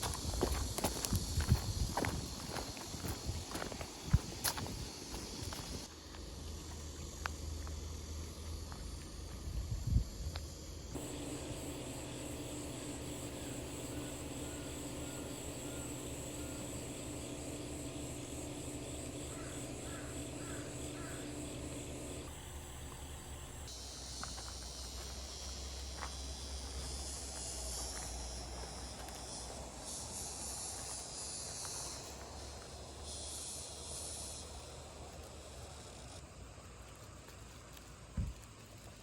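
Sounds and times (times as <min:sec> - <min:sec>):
cicadas droning: 0:00.0 - 0:39.0
steady low hum: 0:09.8 - 0:23.7
short bird calls: 0:19.0 - 0:22.3.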